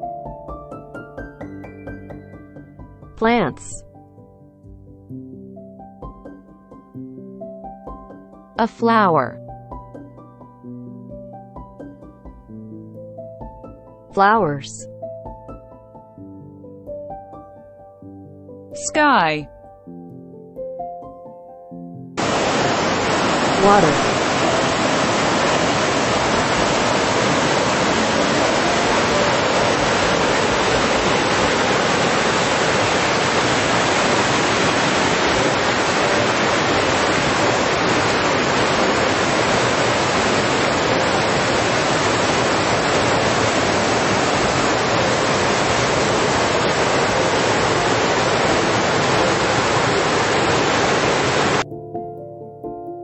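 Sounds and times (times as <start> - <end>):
plucked-string music: 0.0 - 8.6, 24.1 - 32.5
rushing water: 22.2 - 51.6.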